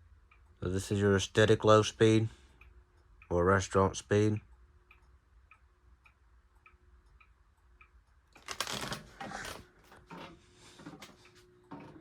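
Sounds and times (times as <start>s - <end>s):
clock ticking: 0.0s - 8.4s.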